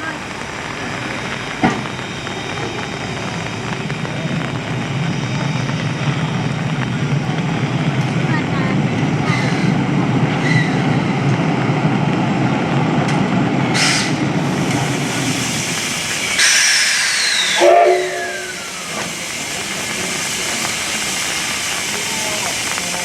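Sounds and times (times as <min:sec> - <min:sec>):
loud hiss of steam: 0:00.0 - 0:07.8, 0:13.7 - 0:23.0
steam locomotive rumbling: 0:00.0 - 0:23.0.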